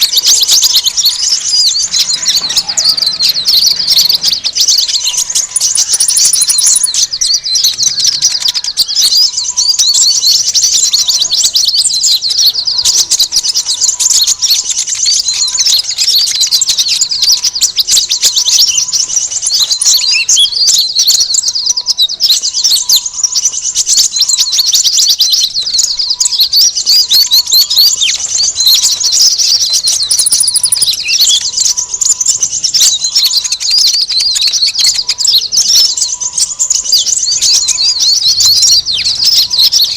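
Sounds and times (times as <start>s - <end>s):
small birds chattering: 0.0s - 39.9s.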